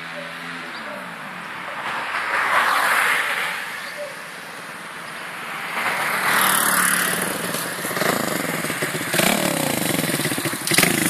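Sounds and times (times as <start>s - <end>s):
motorcycle riding past at speed: 5.5s - 11.0s.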